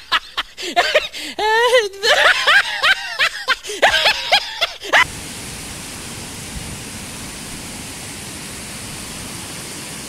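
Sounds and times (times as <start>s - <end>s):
person laughing: 0.0s - 5.1s
steady rushing noise: 5.0s - 10.0s.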